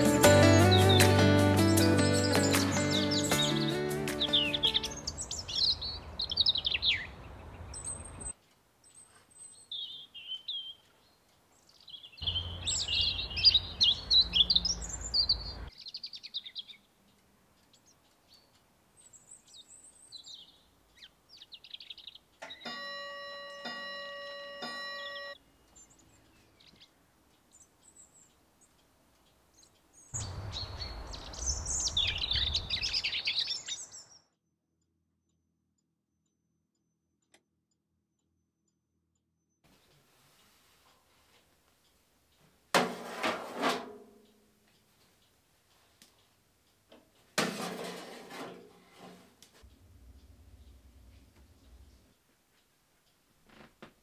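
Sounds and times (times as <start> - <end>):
birds chirping and singing: 0.0 - 22.7, 25.1 - 34.2
low outdoor background: 0.0 - 54.0
chime-like ringing tones: 22.6 - 25.4.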